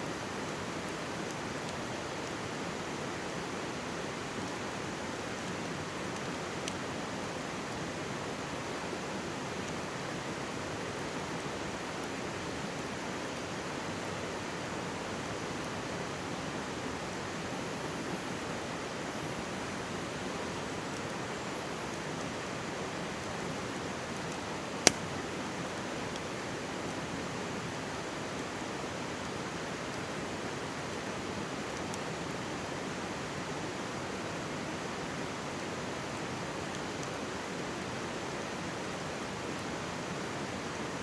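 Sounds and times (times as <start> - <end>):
campfire pop: 24.7 - 25.1.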